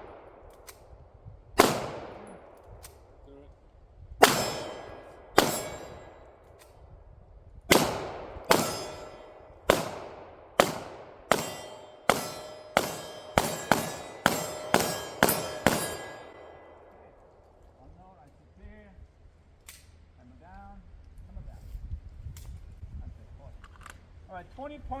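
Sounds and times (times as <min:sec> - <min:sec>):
pistol shots: 0:01.6 - 0:02.9, 0:04.2 - 0:06.2, 0:07.7 - 0:17.4
metallic ring of steel targets: 0:04.2 - 0:06.4, 0:08.5 - 0:09.9, 0:10.6 - 0:17.4.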